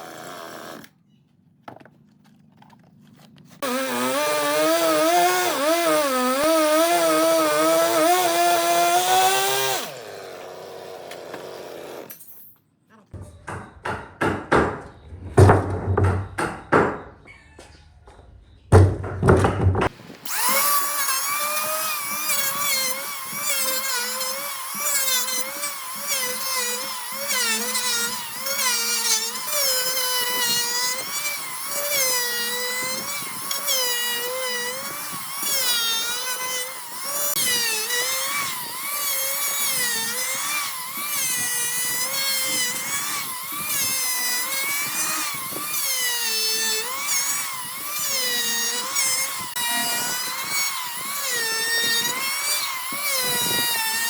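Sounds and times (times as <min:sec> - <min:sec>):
power tool cutting wood: 0:00.0 - 0:00.9, 0:03.6 - 0:12.1, 0:19.9 - 0:54.0
sharp knocks: 0:13.2 - 0:17.2, 0:18.7 - 0:19.9.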